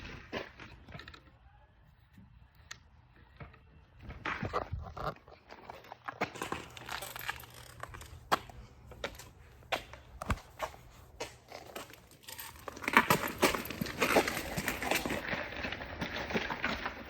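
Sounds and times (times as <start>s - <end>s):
hands handling parts clicking: 6.3s - 15.2s.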